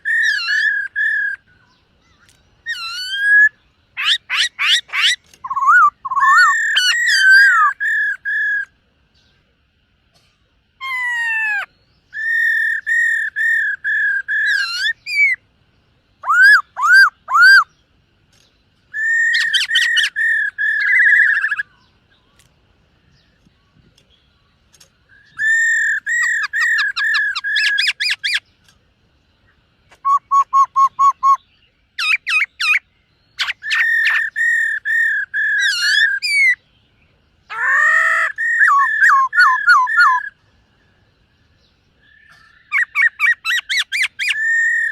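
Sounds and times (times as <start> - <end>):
bird singing whistled phrases: 0.0 - 9.3, 10.8 - 15.4, 16.2 - 17.8, 18.9 - 22.4, 25.1 - 28.4, 29.9 - 36.7, 37.5 - 40.4, 41.6 - 44.9.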